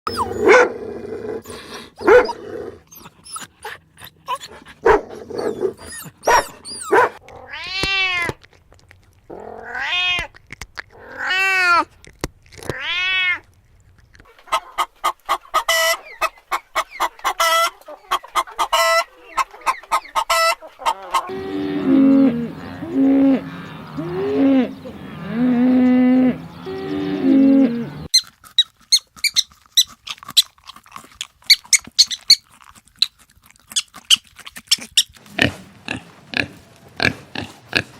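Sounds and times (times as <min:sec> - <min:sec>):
animal calls: 0:00.1 - 0:00.7, 0:01.4 - 0:07.7, 0:14.3 - 0:28.3.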